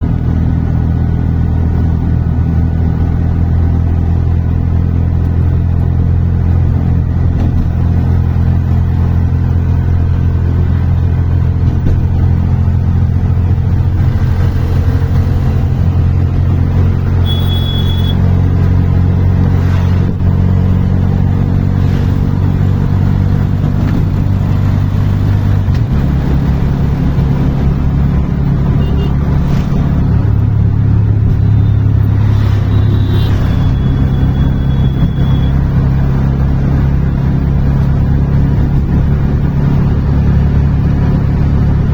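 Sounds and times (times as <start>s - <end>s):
brief high beep: 17.2s - 18.2s, 32.4s - 35.6s.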